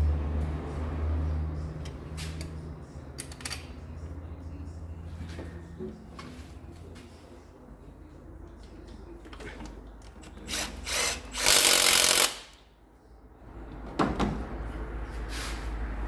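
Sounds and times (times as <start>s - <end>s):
power tool driving bolt: 10.5s - 12.5s.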